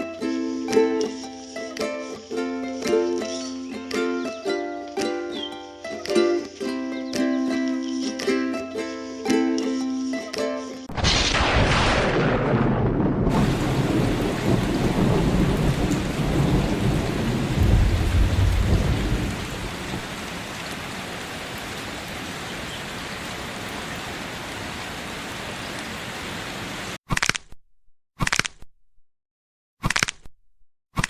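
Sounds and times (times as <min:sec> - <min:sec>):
thunder rumbling: 0:10.9 - 0:21.2
heavy rain: 0:10.9 - 0:27.0.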